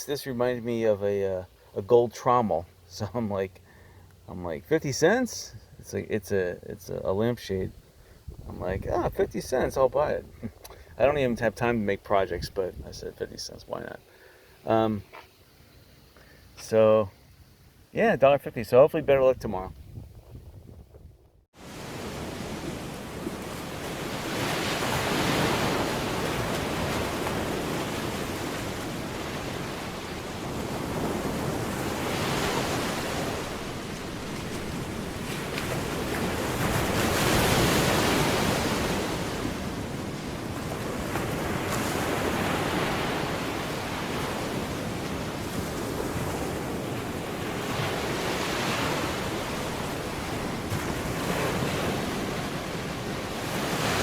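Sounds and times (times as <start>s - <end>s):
wind on microphone: 7.6s - 10.6s, 19.3s - 54.0s
waves washing ashore: 21.6s - 54.0s.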